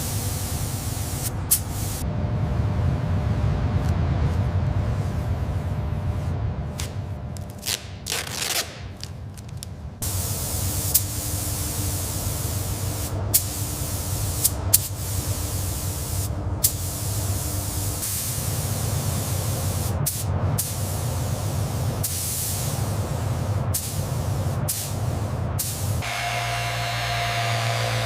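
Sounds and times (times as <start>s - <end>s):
spray hissing: 0.0s - 2.0s, 10.0s - 26.6s
low rumble: 0.4s - 8.0s.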